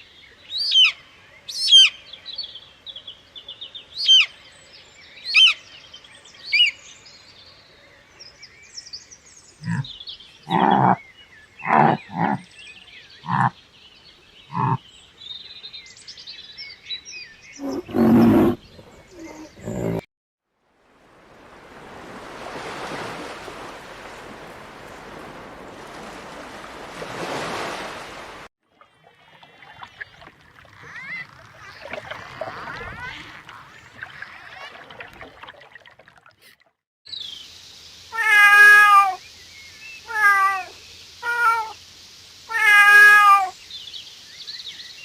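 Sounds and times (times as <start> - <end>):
farm animals calling: 9.6 - 11.0, 11.6 - 12.5, 13.2 - 13.6, 14.4 - 14.9.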